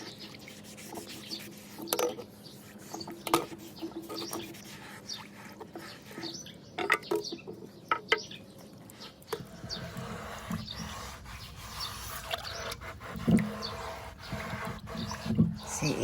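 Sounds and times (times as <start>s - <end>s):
birds chirping: 0.0s - 16.0s
knocking and scraping: 9.3s - 16.0s.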